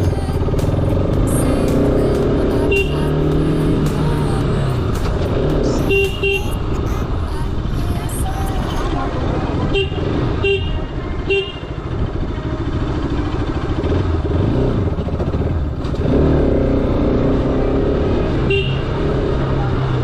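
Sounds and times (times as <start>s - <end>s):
motorcycle engine running: 0.0s - 20.0s
horn toot: 5.6s - 6.7s, 9.6s - 11.9s, 18.4s - 19.0s.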